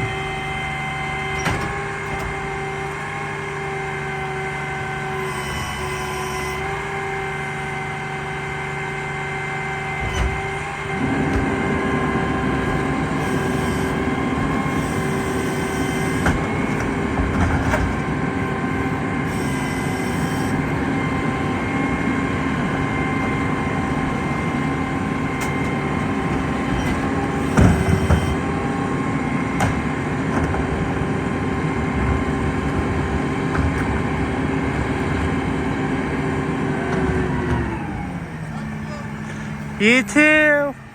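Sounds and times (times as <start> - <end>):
garbage truck diesel engine: 0.0 - 40.9
knocks and clanks: 10.0 - 18.3, 25.4 - 28.4.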